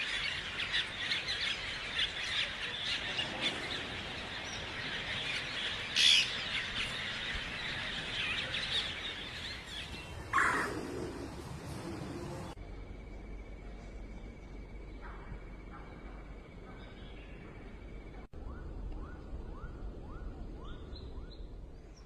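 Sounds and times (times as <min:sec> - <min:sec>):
small birds chirping: 0:00.0 - 0:12.6
louder bird call: 0:10.3 - 0:11.3.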